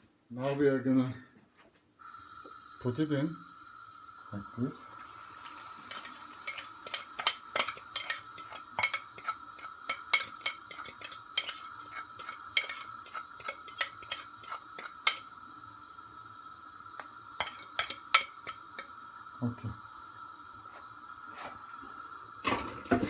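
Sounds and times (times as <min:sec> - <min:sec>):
fork clicking against dish: 0:05.9 - 0:15.2, 0:17.4 - 0:18.9.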